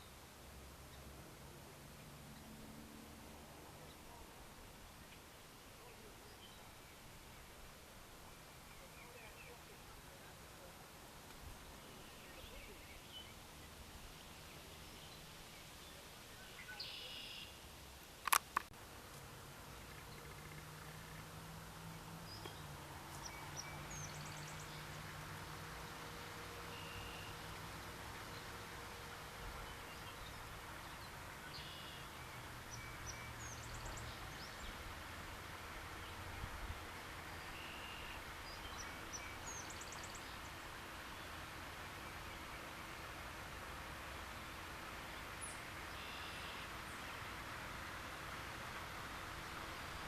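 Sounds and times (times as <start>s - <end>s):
outdoor hiss: 0.0s - 50.0s
small birds chirping: 11.3s - 17.7s, 19.7s - 35.1s, 35.8s - 43.1s, 44.2s - 47.4s
faint bird chirps: 14.6s - 17.7s, 26.7s - 27.4s, 29.6s - 34.8s, 37.4s - 40.5s, 45.4s - 47.0s
sharp clicks: 18.2s - 18.7s.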